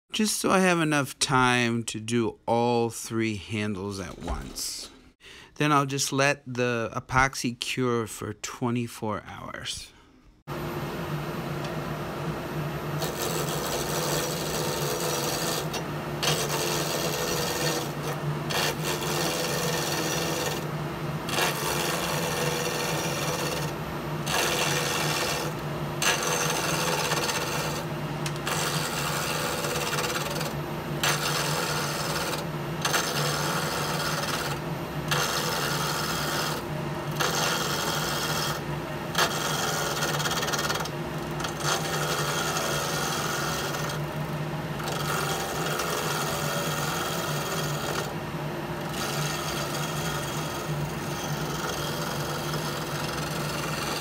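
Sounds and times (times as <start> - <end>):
turning tool cutting wood: 3.6 - 5.7, 13.0 - 48.2, 48.8 - 54.0
wood lathe motor hum: 12.9 - 48.2, 48.8 - 54.0.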